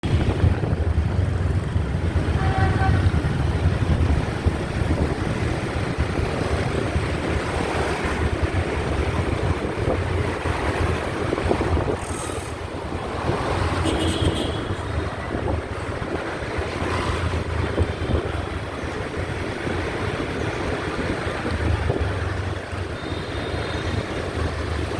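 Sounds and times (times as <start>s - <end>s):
wind buffeting microphone: 0.0s - 13.9s, 14.6s - 24.9s.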